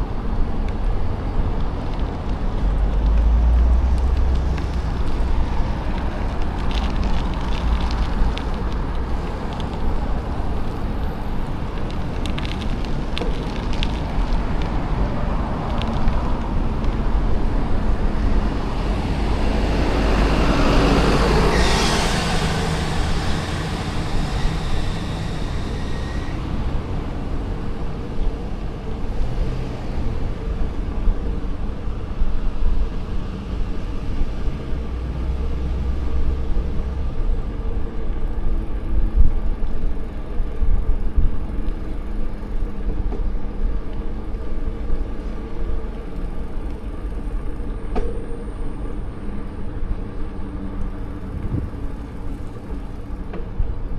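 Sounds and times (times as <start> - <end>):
wind noise on microphone: 0.0 - 53.9
vehicle passing: 13.9 - 30.6.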